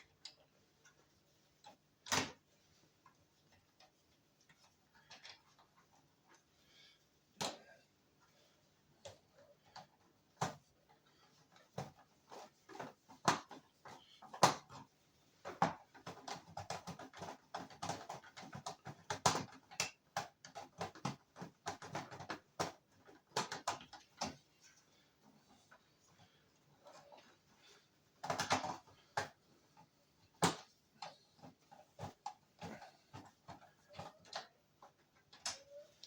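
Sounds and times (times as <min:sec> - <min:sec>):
plastic parts clicking and tapping: 0:09.0 - 0:24.4, 0:28.2 - 0:36.0.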